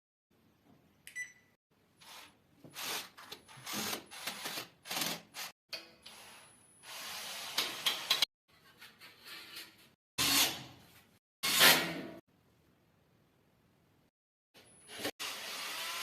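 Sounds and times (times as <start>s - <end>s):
drywall scraping and rasping: 8.5s - 12.0s.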